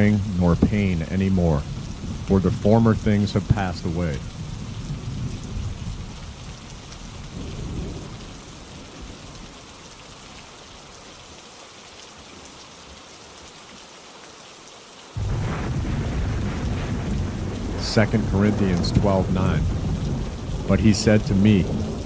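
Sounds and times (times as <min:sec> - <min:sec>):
thunder rumbling: 0:00.0 - 0:06.3, 0:07.3 - 0:09.2, 0:15.2 - 0:22.0
steady rainfall: 0:00.0 - 0:22.0.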